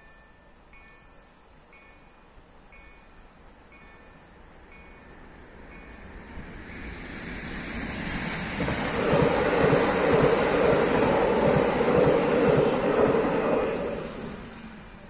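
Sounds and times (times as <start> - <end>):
train passing at speed: 0.0 - 15.0
train wheel clacks: 7.8 - 14.6.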